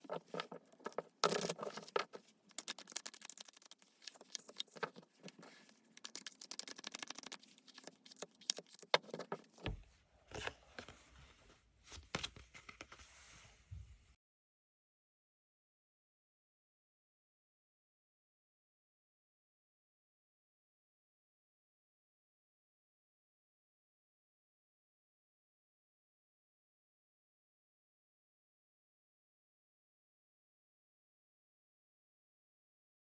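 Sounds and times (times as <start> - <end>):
cards shuffling: 0.0 - 10.5.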